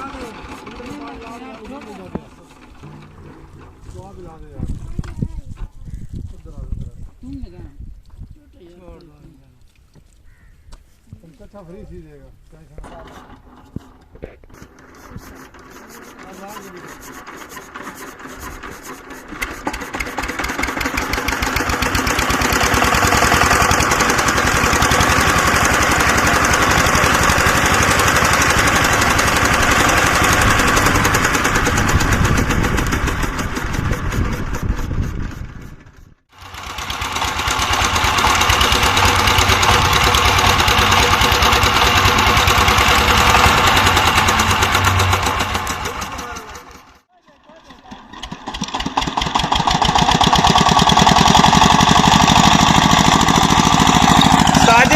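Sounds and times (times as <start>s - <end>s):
diesel engine knocking: 17.2s - 47.0s, 48.0s - 54.9s.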